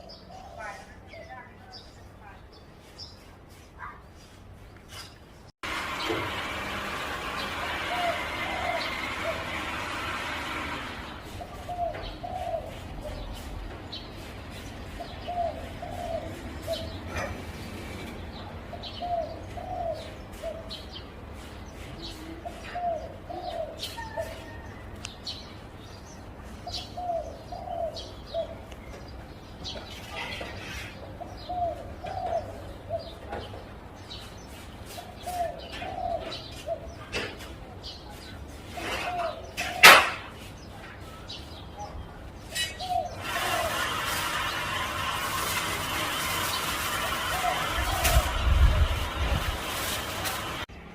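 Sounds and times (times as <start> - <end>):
dove cooing: 7.8 - 9.6, 11.3 - 13.3, 15.0 - 17.4, 18.7 - 20.8, 22.2 - 24.6, 26.7 - 28.6, 31.2 - 33.3, 35.2 - 37.1, 46.8 - 49.1.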